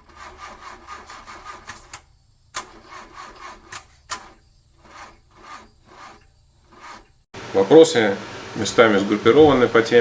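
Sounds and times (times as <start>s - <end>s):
scratchy rubbing and rustling: 0.0s - 7.3s.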